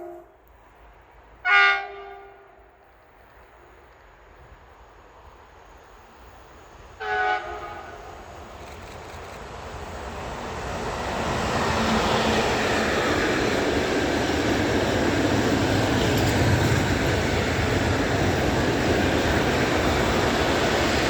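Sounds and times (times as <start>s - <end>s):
train horn blasts: 0.0s - 0.4s, 1.4s - 2.8s, 7.0s - 8.2s
train rumbling: 0.0s - 21.0s.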